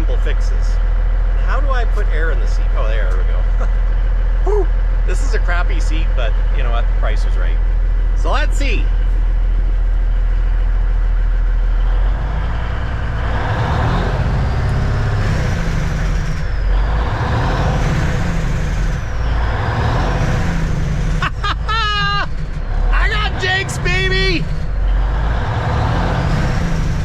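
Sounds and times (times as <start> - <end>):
diesel engine revving: 0.0 - 27.0
person exclaiming: 4.4 - 4.7, 21.2 - 24.5.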